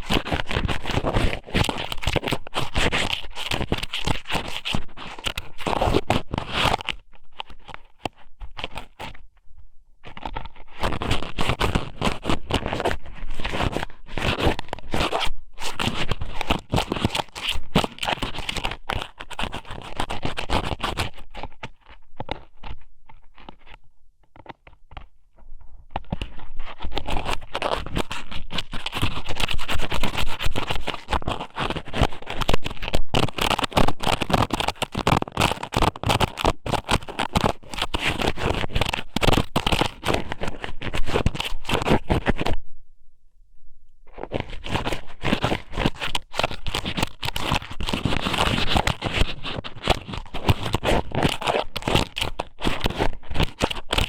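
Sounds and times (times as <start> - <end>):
wet scratching on microphone: 0.0 - 9.2, 10.0 - 42.6, 44.1 - 54.0.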